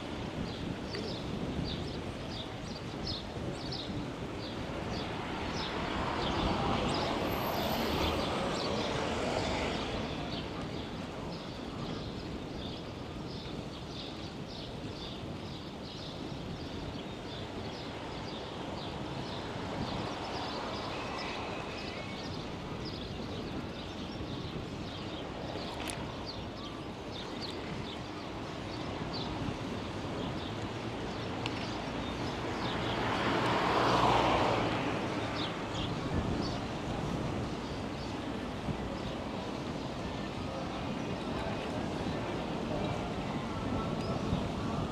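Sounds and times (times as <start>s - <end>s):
wind and road noise: 0.0s - 44.9s
vehicles passing: 4.2s - 11.4s, 27.7s - 44.9s.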